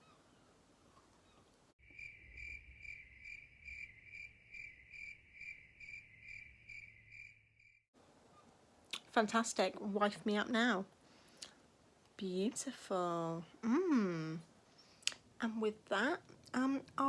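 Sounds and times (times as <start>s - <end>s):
cricket chirping: 1.8s - 7.8s.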